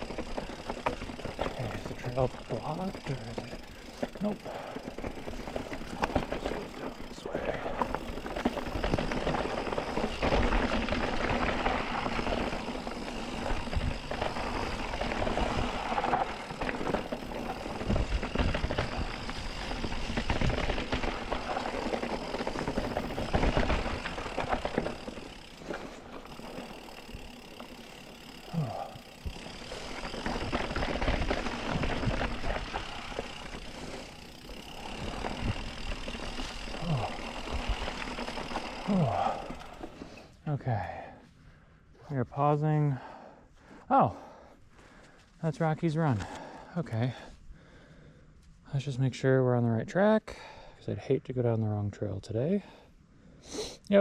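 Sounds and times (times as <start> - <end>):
bike rattling and knocking: 0.0 - 40.1
bike tyres on rocky dirt: 0.0 - 54.0.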